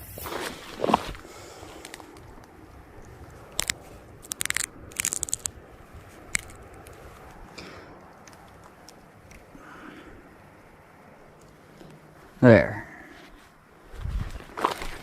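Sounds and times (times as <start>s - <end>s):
glow stick crackling clicks: 1.8s - 5.6s, 6.3s - 7.4s, 8.1s - 9.5s.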